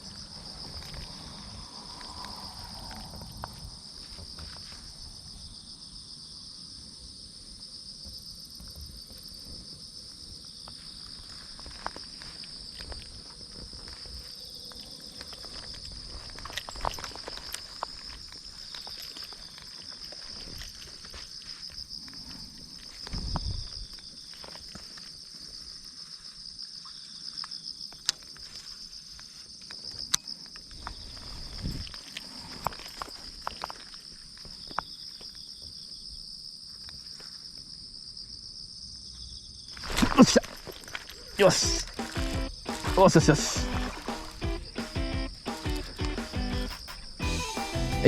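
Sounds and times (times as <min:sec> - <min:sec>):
high-pitched insect chorus: 0:00.0 - 0:48.0
soft low thumps: 0:41.7 - 0:46.7.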